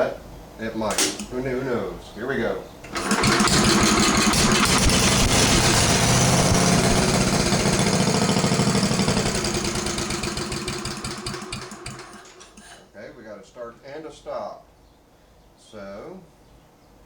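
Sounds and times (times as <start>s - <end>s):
small engine starting and running: 2.9s - 12.8s.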